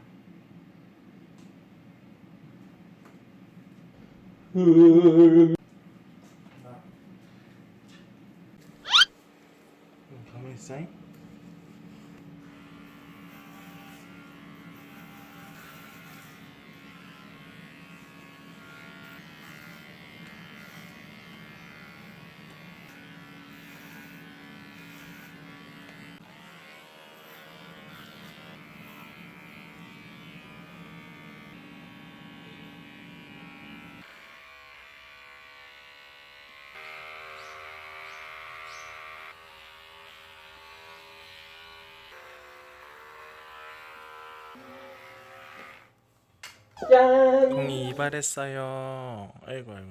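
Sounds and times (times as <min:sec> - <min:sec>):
electric hair clippers buzzing: 0:08.8 - 0:09.1, 0:12.4 - 0:46.0.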